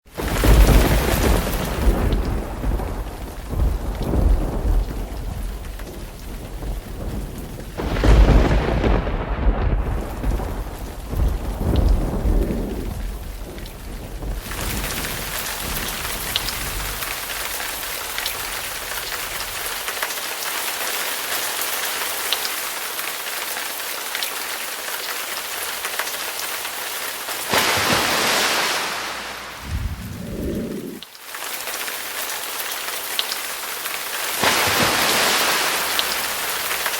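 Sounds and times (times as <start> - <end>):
rain drops ticking: 0.1 - 28.2, 29.3 - 36.9
heavy rain falling: 0.1 - 36.9
thunder rumbling: 0.2 - 19.4, 28.0 - 31.0.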